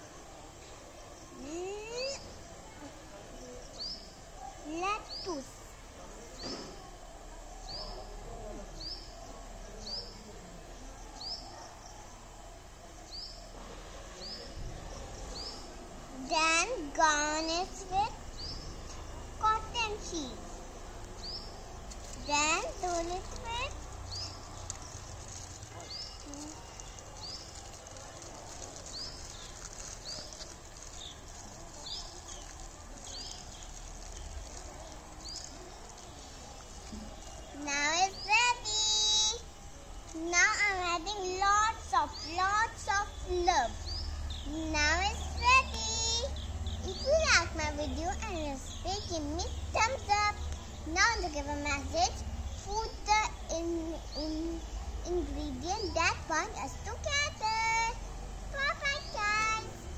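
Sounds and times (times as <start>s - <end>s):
outdoor background noise: 0.0s - 59.9s
bird chirping: 17.3s - 59.9s.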